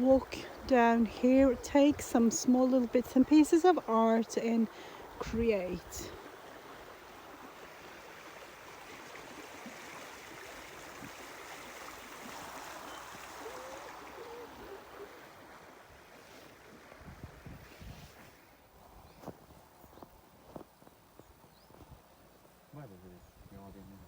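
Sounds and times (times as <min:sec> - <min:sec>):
rushing water hiss: 0:00.0 - 0:18.7.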